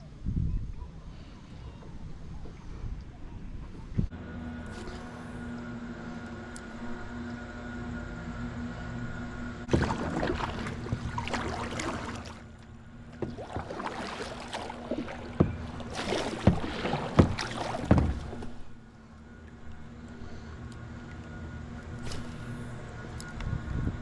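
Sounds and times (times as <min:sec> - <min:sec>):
steady low hum: 0:00.0 - 0:24.0
paddle splashing in water: 0:09.7 - 0:18.8.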